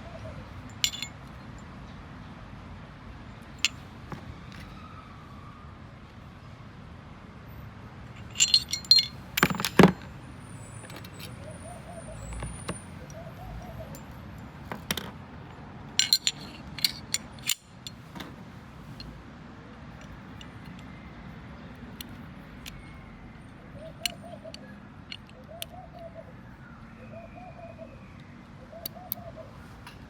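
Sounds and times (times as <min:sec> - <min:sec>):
pistol parts clicking: 0:00.7 - 0:01.4, 0:08.2 - 0:10.1, 0:15.9 - 0:18.3, 0:23.9 - 0:26.1.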